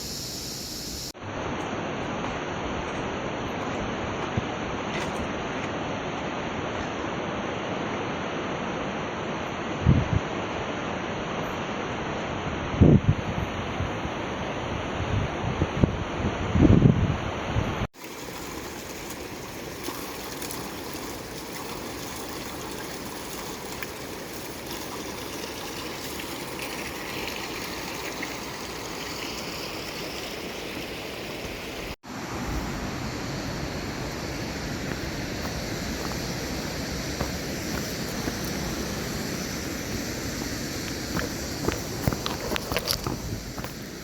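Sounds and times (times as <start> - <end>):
stream water running: 17.9 - 44.0.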